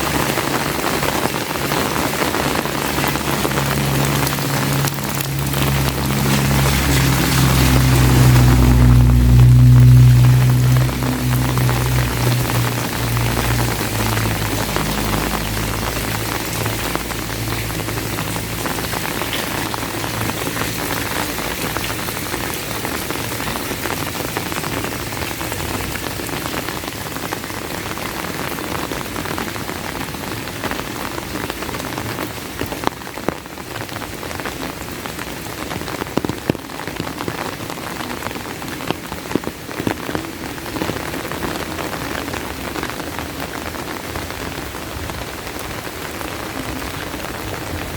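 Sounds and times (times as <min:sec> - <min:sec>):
heavy rain falling: 0:00.0 - 0:47.9
low rumble: 0:01.5 - 0:26.9.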